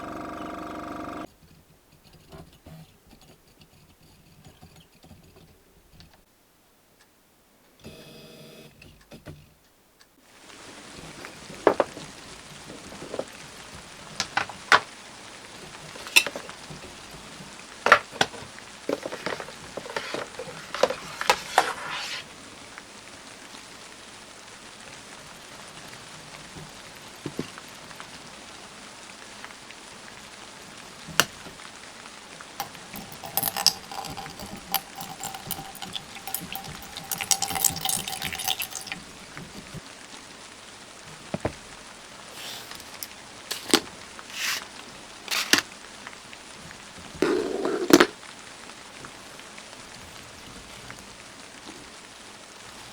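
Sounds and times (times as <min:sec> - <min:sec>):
faint hiss: 0:10.2 - 0:52.9
tools scratching plastic parts: 0:42.3 - 0:44.7, 0:45.3 - 0:45.6.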